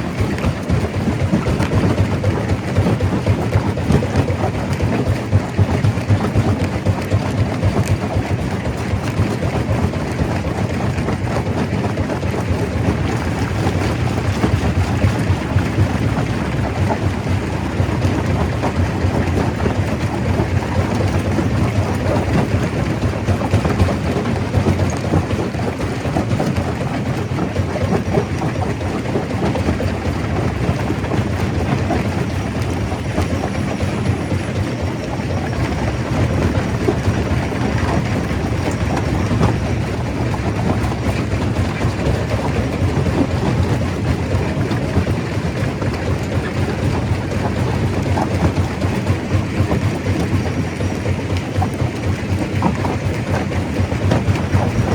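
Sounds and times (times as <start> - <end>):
rock rattling and crackling: 0.0 - 54.9
stone crusher machine rumbling: 11.8 - 54.9.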